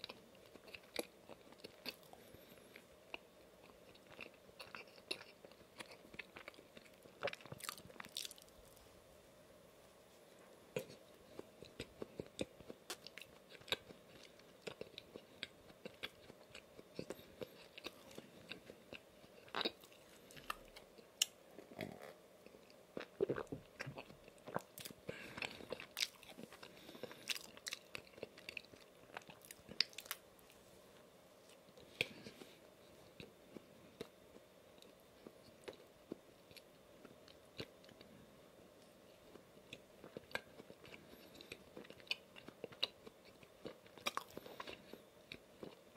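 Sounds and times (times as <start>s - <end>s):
chewing donut: 0.0s - 8.8s, 10.7s - 30.5s, 38.8s - 45.9s.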